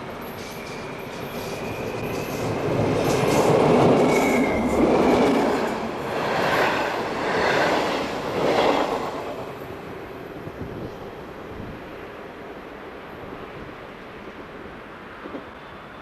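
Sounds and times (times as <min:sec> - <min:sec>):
train wheels rumbling: 0:00.0 - 0:11.1.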